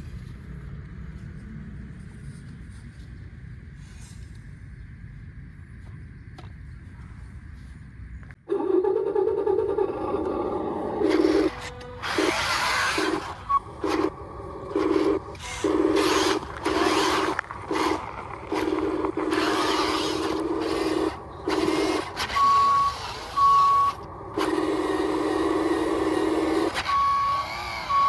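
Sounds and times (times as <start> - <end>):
electronic truck engine hum: 0.0 - 28.0
reversing beeper: 10.0 - 18.0, 18.6 - 28.0.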